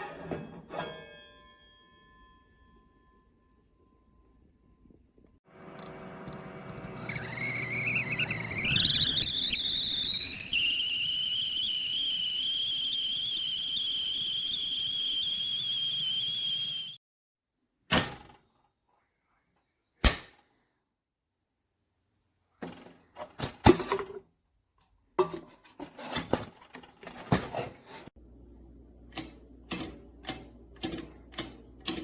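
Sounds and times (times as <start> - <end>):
stovetop kettle whistling: 5.5 - 17.0.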